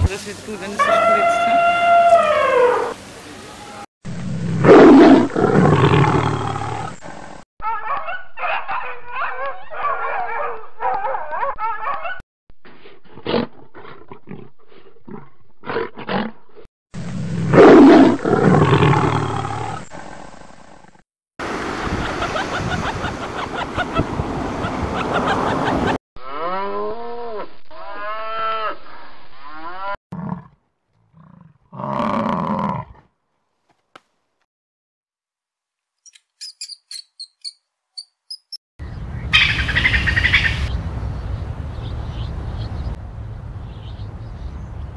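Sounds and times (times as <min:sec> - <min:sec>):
animal calls rising and falling: 0:00.8 - 0:03.0
deep animal roar: 0:04.4 - 0:07.3, 0:17.4 - 0:21.0
animal chattering calls: 0:39.3 - 0:40.7.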